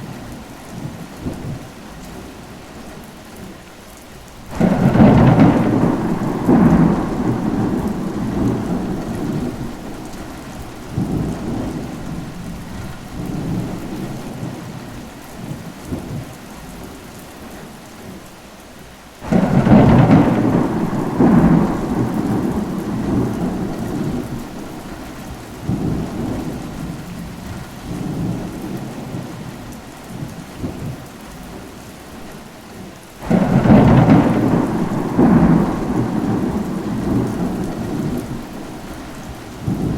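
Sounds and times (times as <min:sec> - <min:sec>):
steady rain: 0:00.0 - 0:39.9
rolling thunder: 0:04.5 - 0:14.6, 0:19.2 - 0:31.0, 0:33.2 - 0:39.9.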